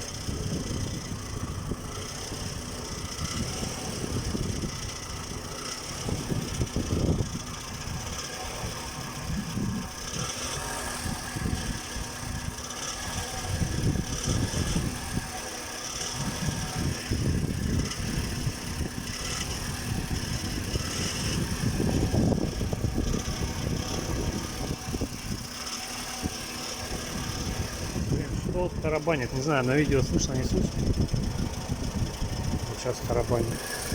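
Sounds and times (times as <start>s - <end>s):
engine idling with knocking rattle: 0.0s - 33.9s.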